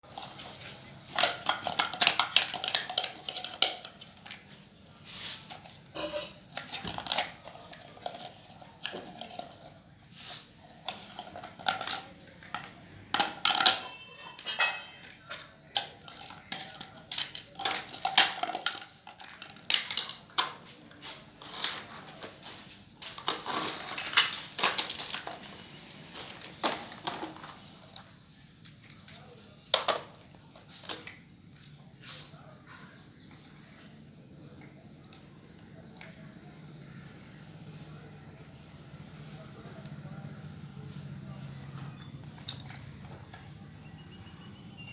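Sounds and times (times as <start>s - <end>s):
plastic toy pieces clattering: 0.1s - 31.7s.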